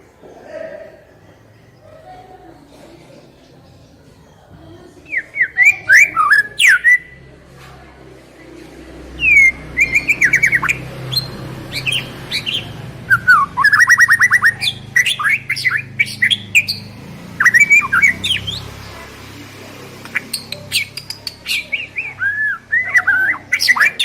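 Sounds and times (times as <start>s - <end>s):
songbird whistles and chirps: 5.1s - 7.2s, 9.2s - 18.7s, 20.1s - 24.0s.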